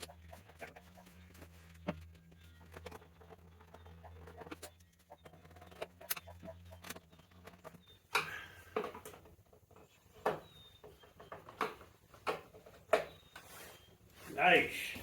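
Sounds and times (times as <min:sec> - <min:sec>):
scooter parts clicking and knocking: 0:01.8 - 0:13.5
scraping rustle: 0:11.2 - 0:15.0.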